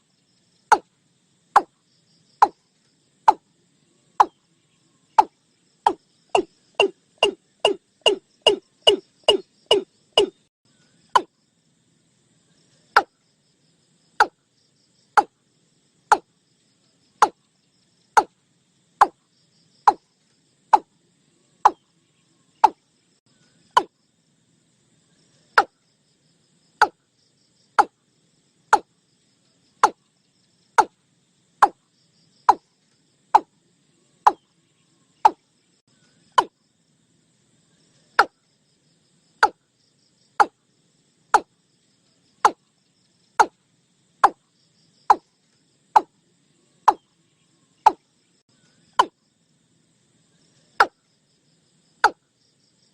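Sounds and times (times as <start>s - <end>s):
bird calling hollow notes: 0.7s - 0.9s, 3.2s - 3.5s, 4.2s - 4.4s, 5.1s - 10.5s, 11.1s - 11.4s, 20.7s - 20.9s, 22.6s - 22.8s, 23.7s - 24.0s, 29.8s - 30.0s, 30.8s - 31.0s, 33.3s - 33.5s, 34.2s - 34.5s, 40.4s - 40.6s, 42.4s - 42.6s, 46.8s - 47.1s, 48.9s - 49.2s.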